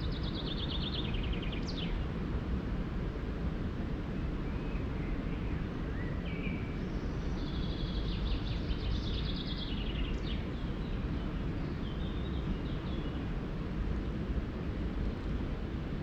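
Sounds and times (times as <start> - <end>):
songbirds singing: 0.0 - 2.1, 4.2 - 14.4
low background rumble: 0.0 - 16.0.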